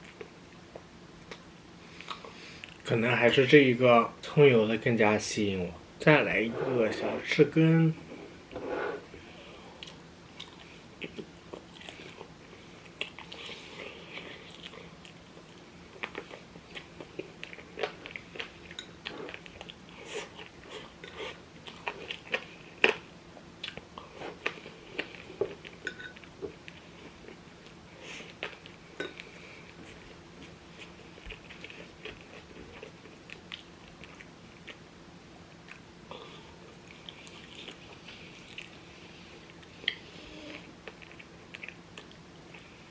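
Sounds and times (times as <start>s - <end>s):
chewing and crunching: 9.7s - 34.9s, 35.5s - 42.9s.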